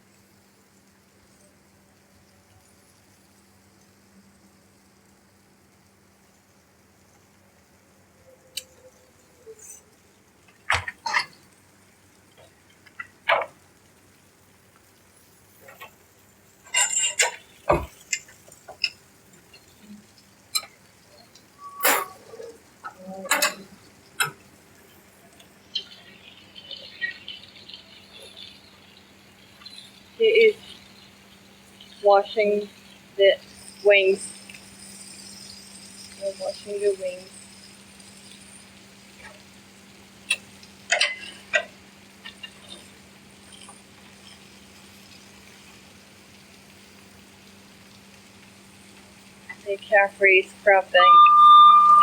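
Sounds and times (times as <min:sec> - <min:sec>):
faint scratchy hiss with ticks: 0:00.0 - 0:51.0
squeaks and scrapes: 0:16.6 - 0:18.3, 0:21.6 - 0:23.8, 0:51.0 - 0:52.0.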